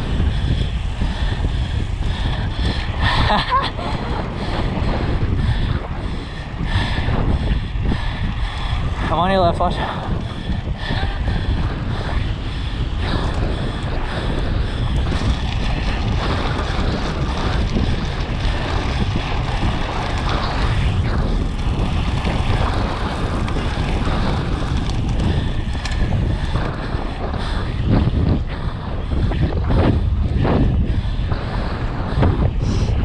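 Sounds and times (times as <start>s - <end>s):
low rumble of bike ride: 0.0s - 33.0s
wind buffeting microphone: 0.0s - 33.0s.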